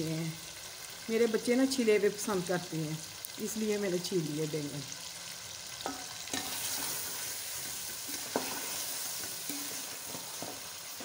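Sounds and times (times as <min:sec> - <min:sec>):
potatoes sizzling in oil: 0:00.0 - 0:11.0.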